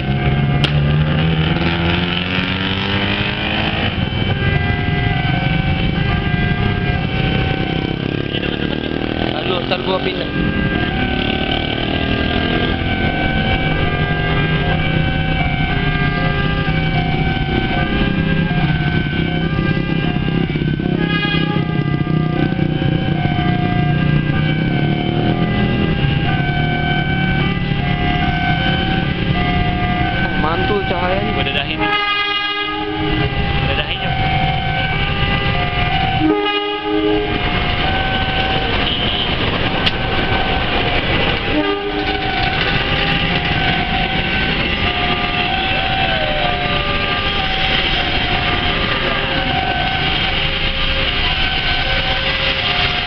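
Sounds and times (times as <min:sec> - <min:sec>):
train low rumble: 0:12.0 - 0:53.0
train horn: 0:20.8 - 0:22.0, 0:31.7 - 0:33.3, 0:36.1 - 0:37.5, 0:38.8 - 0:39.4, 0:41.4 - 0:42.8.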